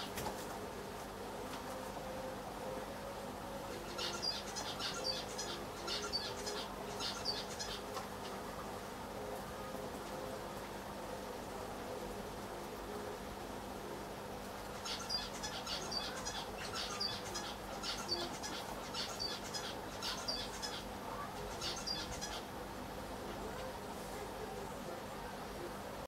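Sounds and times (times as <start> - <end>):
steady hum: 0.0 - 26.0
small bird chirping: 3.8 - 8.4, 14.8 - 22.5.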